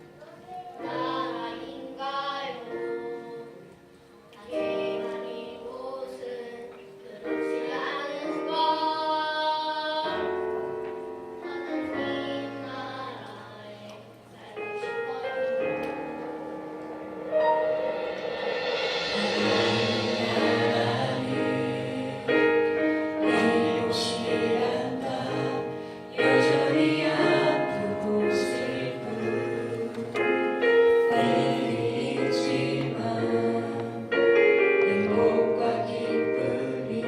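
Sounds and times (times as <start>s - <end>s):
instrumental accompaniment: 0.0s - 37.0s
women singing worship song: 19.2s - 30.4s, 31.0s - 37.0s.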